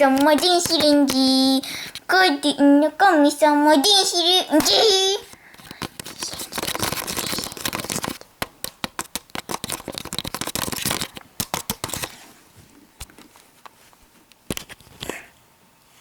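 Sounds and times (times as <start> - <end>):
scattered taps: 0.1 - 1.4
small objects clicking and rustling: 5.6 - 12.1.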